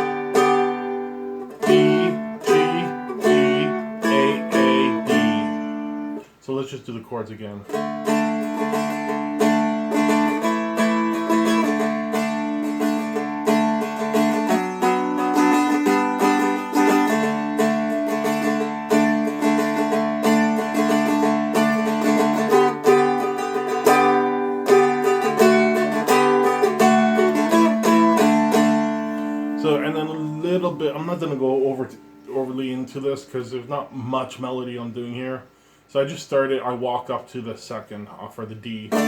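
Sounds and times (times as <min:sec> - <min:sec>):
dulcimer chords with drone: 0:00.0 - 0:06.2, 0:07.7 - 0:31.8.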